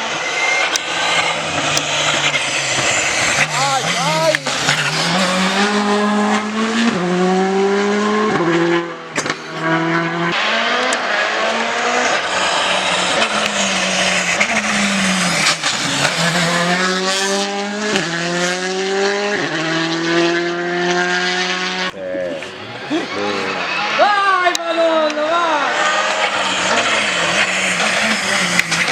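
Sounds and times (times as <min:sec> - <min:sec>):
rally car engine at full throttle: 0:00.0 - 0:28.9.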